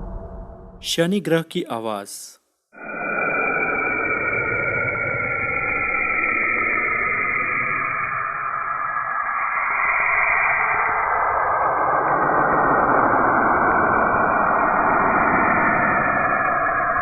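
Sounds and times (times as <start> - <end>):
steady dense hiss: 0.8 - 2.3.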